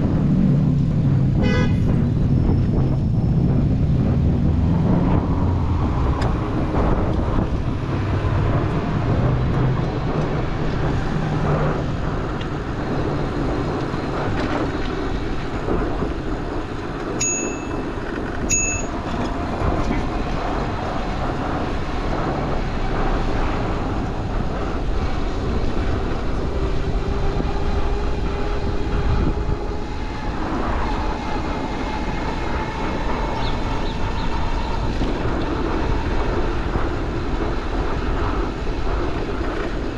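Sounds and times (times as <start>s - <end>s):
city street traffic: 0.0s - 39.9s
streetcar drone: 0.0s - 39.9s
vehicles passing: 0.0s - 39.9s
wind rush: 0.0s - 39.9s
short high pings: 17.2s - 17.8s, 18.5s - 18.9s.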